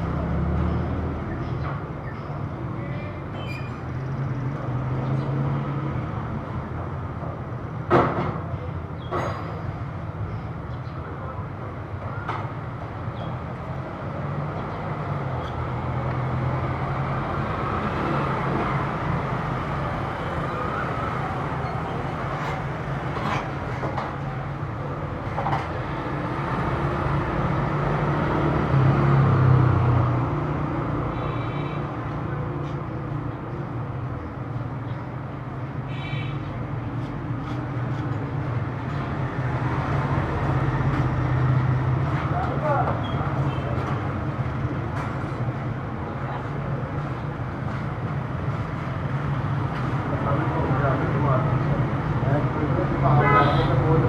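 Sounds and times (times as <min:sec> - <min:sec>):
traffic rumble: 0:00.0 - 0:54.0
loud vehicle passing: 0:04.7 - 0:06.7, 0:13.7 - 0:24.8, 0:25.7 - 0:33.2.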